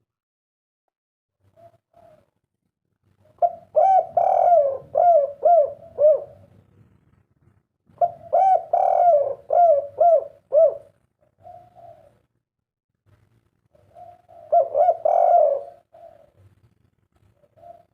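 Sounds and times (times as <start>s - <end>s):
dove cooing: 1.4s - 2.4s, 3.2s - 6.6s, 7.9s - 12.4s, 13.7s - 17.9s.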